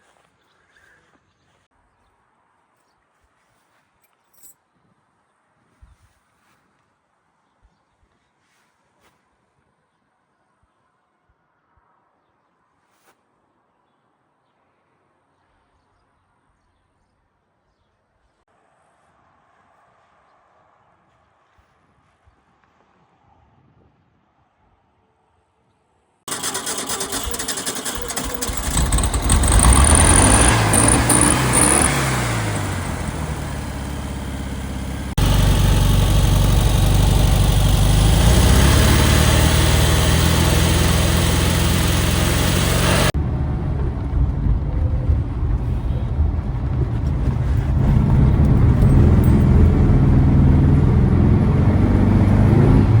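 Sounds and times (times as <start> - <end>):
car engine revving: 26.3 - 53.0.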